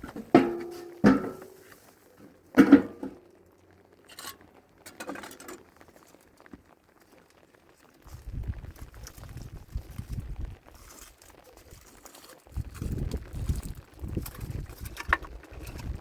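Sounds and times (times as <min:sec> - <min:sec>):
metal pots clanking: 0:00.0 - 0:03.2.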